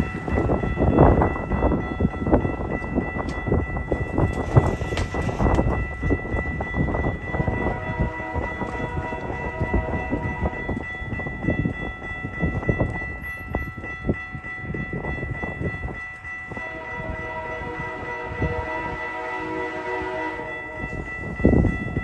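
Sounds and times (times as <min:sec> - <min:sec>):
train passing close by: 0:00.0 - 0:22.0
wheels knocking over rail: 0:04.2 - 0:06.1.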